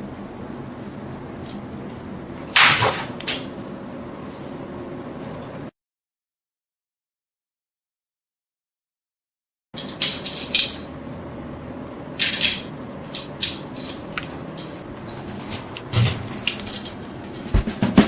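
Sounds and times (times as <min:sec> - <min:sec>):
faint steady hum: 0:00.0 - 0:05.7
small metal parts clinking: 0:09.8 - 0:10.9, 0:12.2 - 0:17.5.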